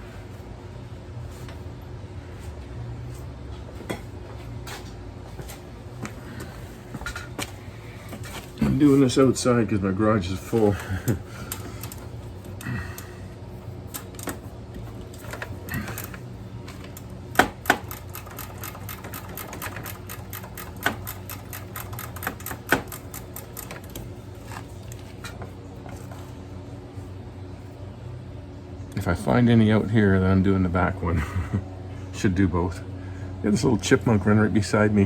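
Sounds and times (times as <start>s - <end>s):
ratchet wrench clicking: 17.6s - 24.0s.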